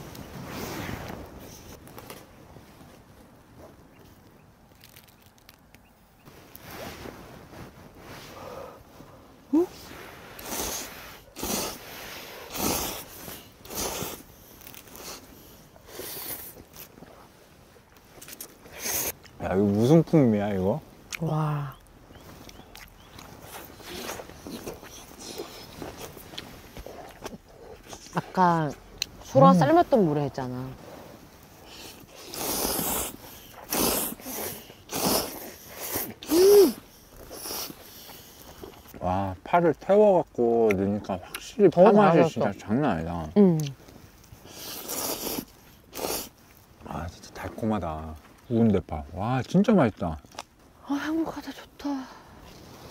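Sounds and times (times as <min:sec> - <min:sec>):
noodles being slurped: 0:10.3 - 0:17.0, 0:31.7 - 0:38.9, 0:44.5 - 0:46.4
person humming mm: 0:36.3 - 0:36.8.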